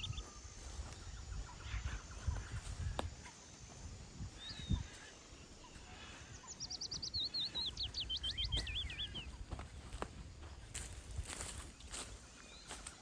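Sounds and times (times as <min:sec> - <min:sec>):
small songbird singing: 0:00.0 - 0:09.5.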